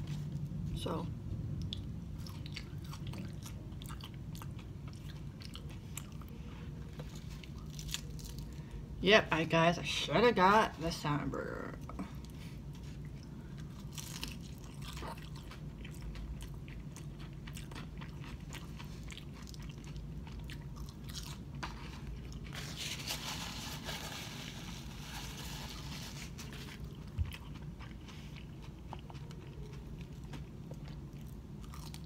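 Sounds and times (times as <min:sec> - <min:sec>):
steady low hum: 0:00.0 - 0:32.0
chewing and crunching fried fish: 0:01.5 - 0:09.0, 0:11.9 - 0:32.0.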